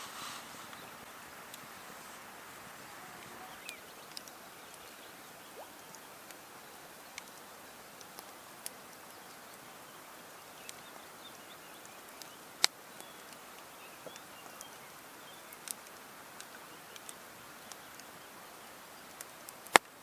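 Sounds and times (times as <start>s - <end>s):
steady low hiss: 0.0s - 20.0s
faint high chirps: 2.8s - 7.4s.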